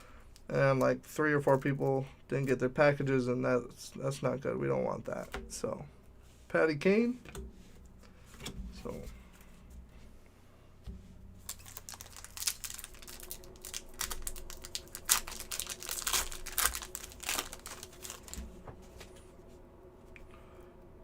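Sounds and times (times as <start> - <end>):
foil wrapper crinkling and tearing: 11.4 - 19.1.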